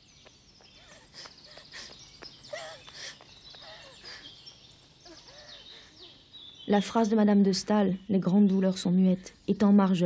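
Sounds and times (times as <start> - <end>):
birds chirping and whistling: 0.0 - 7.1
low background hiss: 0.0 - 10.0.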